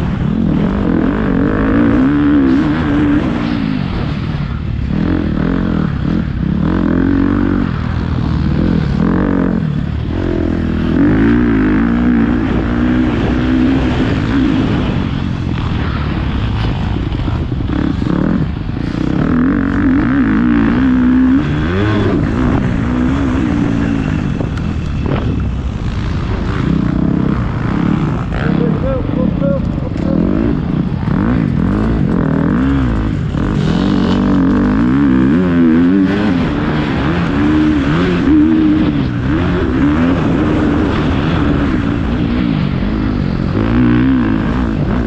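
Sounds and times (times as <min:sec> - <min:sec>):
dirt bike engine revving: 0:00.0 - 0:45.0.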